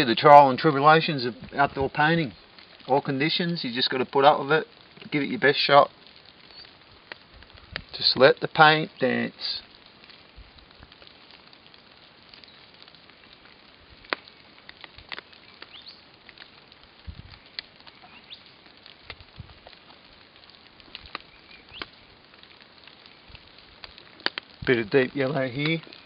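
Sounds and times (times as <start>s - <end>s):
light rain hiss: 0.0s - 26.0s
raindrop taps and clicks: 0.0s - 26.0s
soft low thumps: 17.0s - 17.4s.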